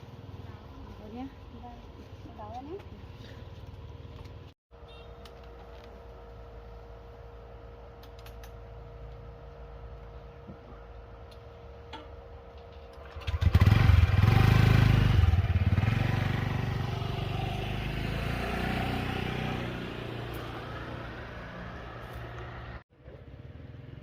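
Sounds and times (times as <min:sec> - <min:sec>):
motorbike engine running: 0:13.0 - 0:21.1.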